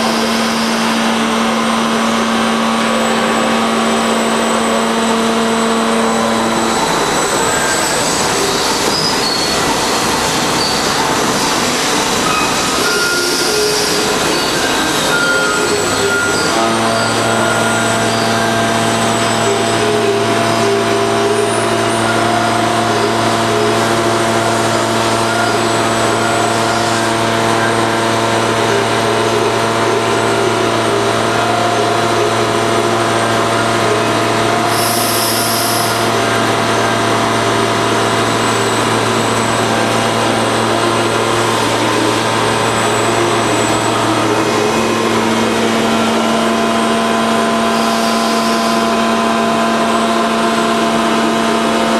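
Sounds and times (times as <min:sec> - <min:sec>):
lathe machine humming: 0:00.0 - 0:51.9.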